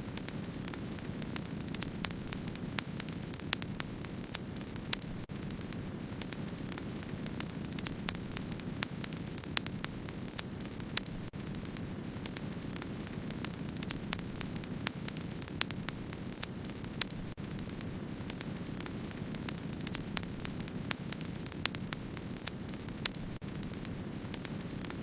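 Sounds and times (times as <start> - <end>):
campfire crackling: 0.0 - 25.0.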